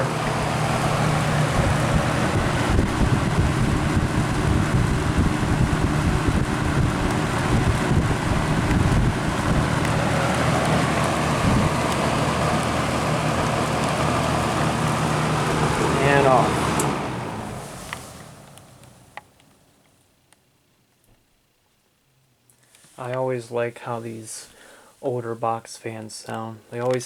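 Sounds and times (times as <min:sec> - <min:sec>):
box fan rushing air: 0:00.0 - 0:19.5
low motor hum: 0:00.0 - 0:19.5.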